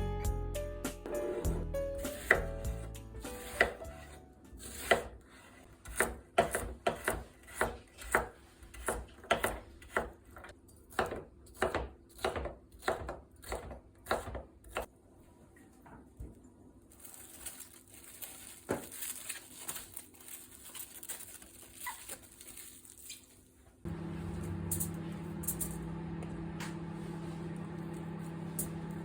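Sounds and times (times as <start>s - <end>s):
soft background music: 0.0s - 4.9s
knife chopping on cutting board: 2.0s - 4.0s, 4.6s - 5.2s, 5.8s - 14.9s.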